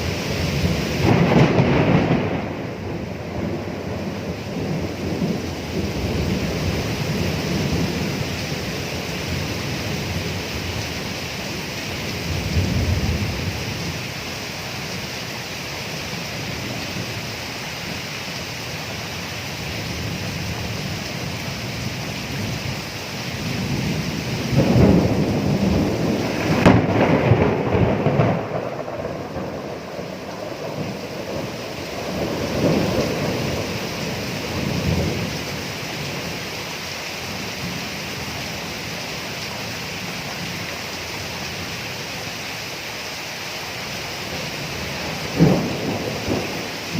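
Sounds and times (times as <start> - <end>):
rolling thunder: 0.0 - 10.8, 12.2 - 13.9, 23.4 - 36.4, 44.4 - 46.9
steady rain: 0.0 - 46.9.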